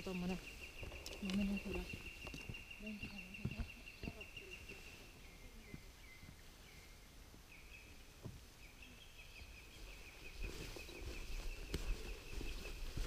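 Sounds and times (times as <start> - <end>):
footsteps on forest path: 0.0 - 6.8, 9.4 - 13.0.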